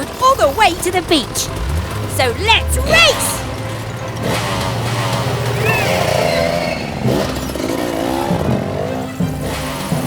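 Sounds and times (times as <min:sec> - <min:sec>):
cartoon racing engines revving: 0:00.0 - 0:10.0.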